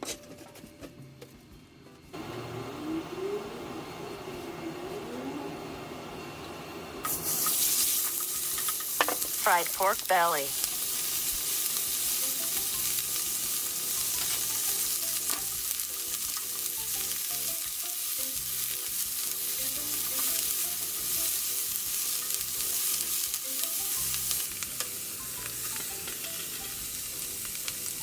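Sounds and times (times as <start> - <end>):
meat sizzling in a frying pan: 7.0 - 28.0.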